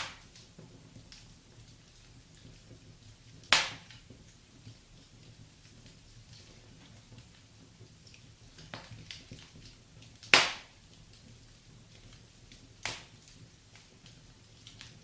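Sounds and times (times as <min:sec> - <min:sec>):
loud sharp pop from fire: 0:00.0 - 0:01.3, 0:02.4 - 0:04.2, 0:08.6 - 0:10.8, 0:12.8 - 0:13.9
wood fire crackling: 0:00.0 - 0:15.0.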